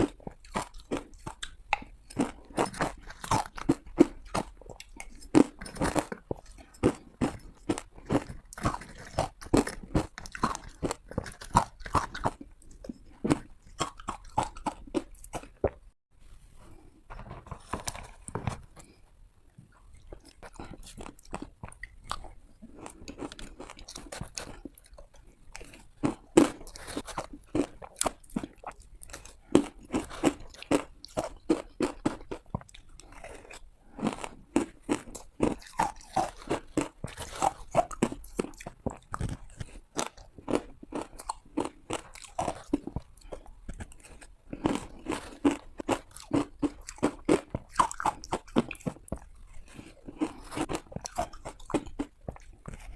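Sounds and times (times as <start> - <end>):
person crunching ice: 0.0 - 12.5, 33.0 - 52.9.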